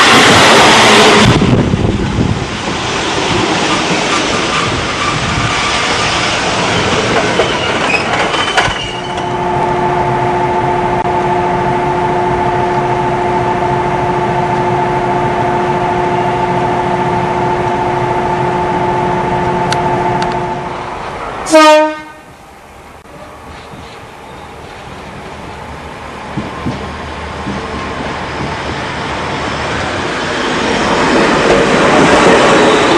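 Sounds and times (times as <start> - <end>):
electric train running on rails: 0.0 - 32.9
train horn blast: 21.4 - 22.3.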